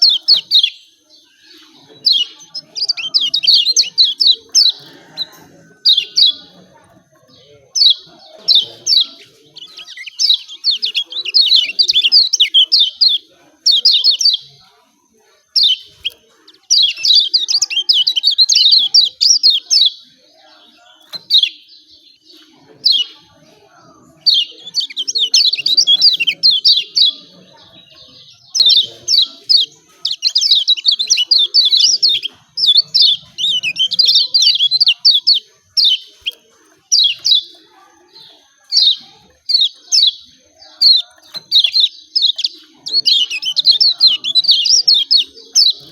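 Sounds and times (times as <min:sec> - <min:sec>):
bird chattering calls: 0:00.0 - 0:14.6, 0:23.9 - 0:45.9.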